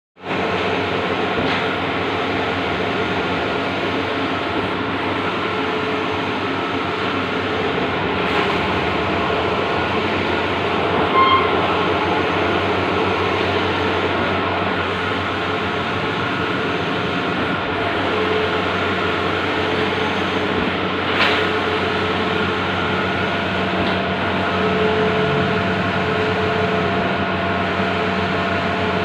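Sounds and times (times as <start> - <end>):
printing machine humming and whirring: 0.2 - 29.0
short high-pitched tone: 11.0 - 12.2.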